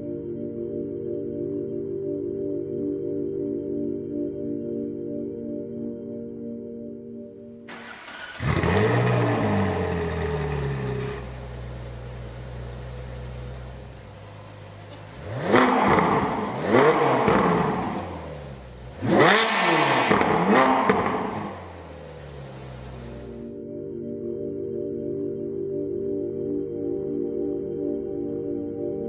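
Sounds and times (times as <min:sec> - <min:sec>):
car engine starting and revving: 0:07.7 - 0:23.5.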